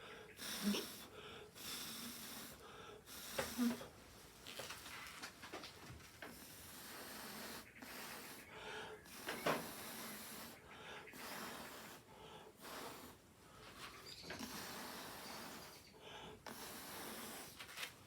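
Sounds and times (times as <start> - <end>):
breath blown through a straw: 0.4 - 3.9, 6.3 - 13.2, 14.4 - 17.6.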